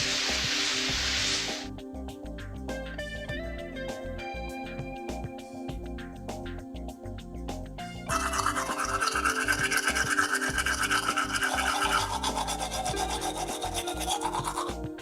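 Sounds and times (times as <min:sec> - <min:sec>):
soft background music: 0:00.0 - 0:15.0
tool rasping: 0:08.1 - 0:14.8.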